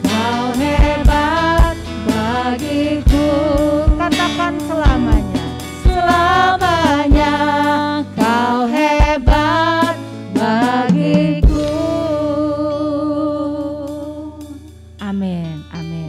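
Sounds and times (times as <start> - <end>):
band accompaniment: 0.0 - 12.0
drum hits: 0.0 - 12.0
person singing worship song: 0.0 - 14.6.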